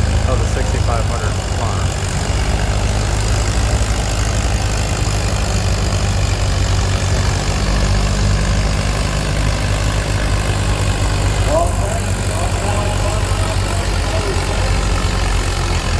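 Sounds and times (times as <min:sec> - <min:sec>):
tractor engine rumbling: 0:00.0 - 0:15.9.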